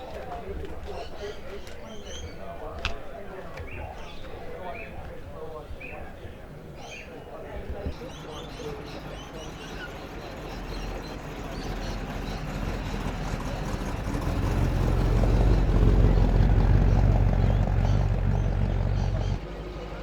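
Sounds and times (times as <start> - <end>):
car engine approaching: 8.0 - 20.0.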